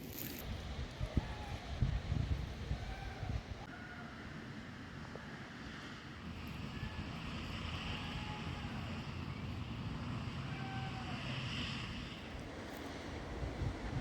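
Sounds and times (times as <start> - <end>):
wind rumbling on microphone: 0.0 - 3.7, 6.2 - 14.0
faint airy hiss: 4.2 - 14.0.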